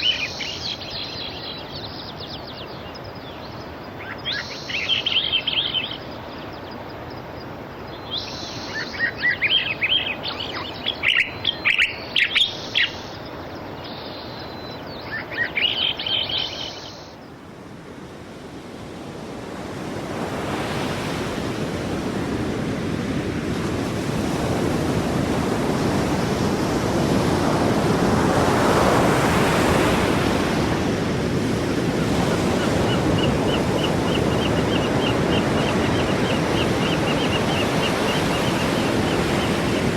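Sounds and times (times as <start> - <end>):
small birds chirping: 0.0 - 17.2, 31.9 - 39.9
sea surf rushing: 0.0 - 39.9.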